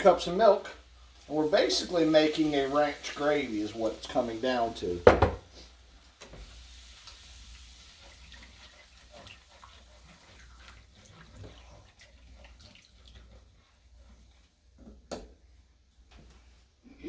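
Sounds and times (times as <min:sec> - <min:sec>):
milk pouring into a pan: 0:06.7 - 0:14.6.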